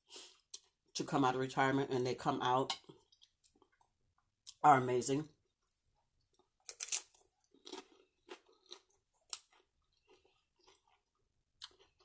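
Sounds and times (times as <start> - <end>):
crunching tortilla chip: 6.6 - 11.0.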